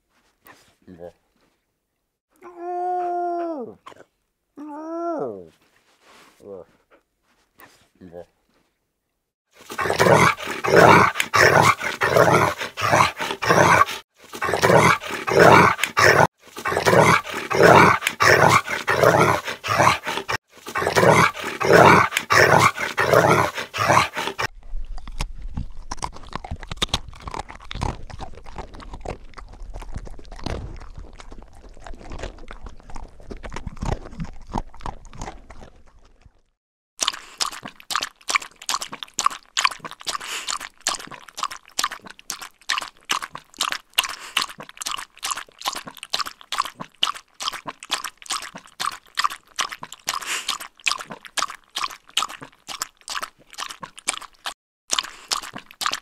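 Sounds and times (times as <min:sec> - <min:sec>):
crunching and clicking: 0:09.6 - 0:36.4.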